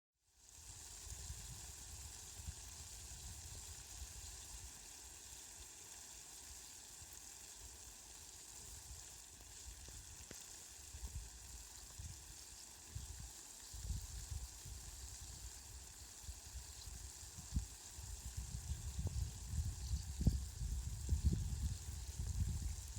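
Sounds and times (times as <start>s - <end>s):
rain hissing: 0.4s - 22.9s
ticks of raindrops: 9.6s - 11.2s.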